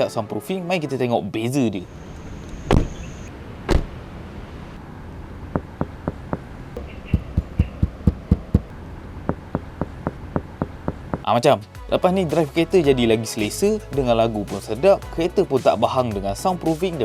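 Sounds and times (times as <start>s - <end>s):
steady low hum: 1.8s - 11.3s
loud dull thumps: 2.7s - 3.0s, 3.7s - 4.0s, 5.5s - 11.3s
short low knocks: 5.5s - 11.3s.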